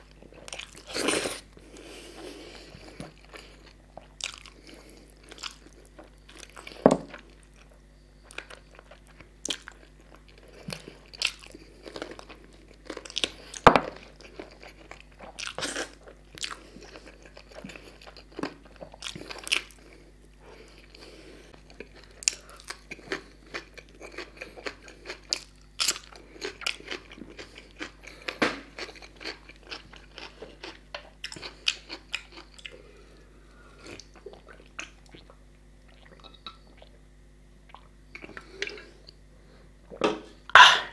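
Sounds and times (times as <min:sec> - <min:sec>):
chewing and biting bones: 0:02.6 - 0:20.0, 0:20.6 - 0:32.9.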